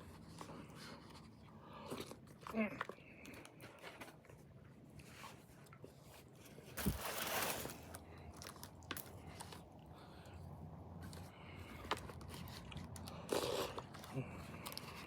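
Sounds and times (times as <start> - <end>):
crunching rustle: 6.5 - 9.6.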